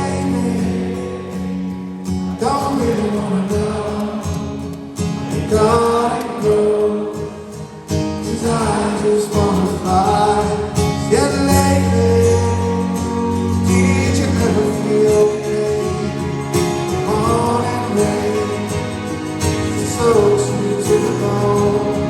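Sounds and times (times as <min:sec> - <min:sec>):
live rock band playing: 0:08.8 - 0:22.0.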